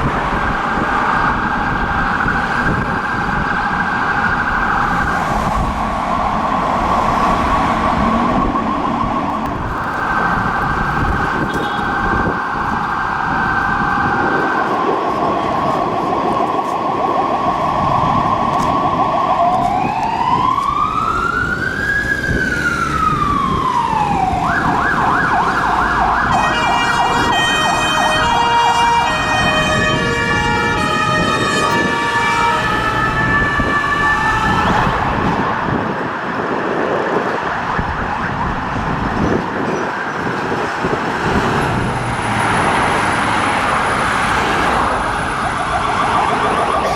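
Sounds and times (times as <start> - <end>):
ambulance siren: 0.0 - 46.9
traffic noise: 0.0 - 46.9.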